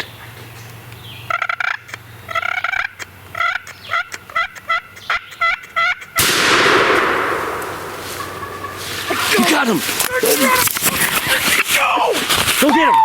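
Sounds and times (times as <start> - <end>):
wild turkey calling: 1.0 - 11.7
shotgun shot echoing: 6.2 - 9.7.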